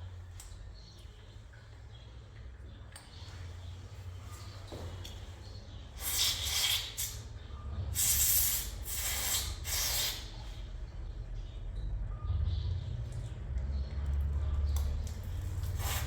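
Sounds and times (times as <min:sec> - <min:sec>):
steady low hum: 0:00.0 - 0:16.0
hissing spray bursts: 0:06.0 - 0:07.2, 0:08.0 - 0:10.3.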